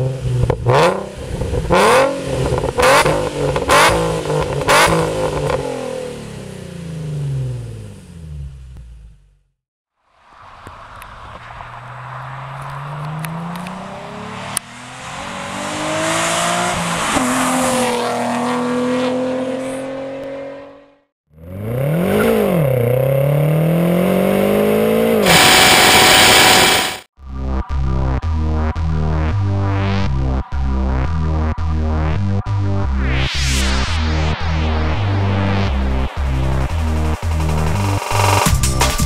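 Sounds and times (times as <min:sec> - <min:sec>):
another car engine revving: 0:00.0 - 0:09.4, 0:11.0 - 0:27.1
car accelerating past: 0:10.2 - 0:27.1.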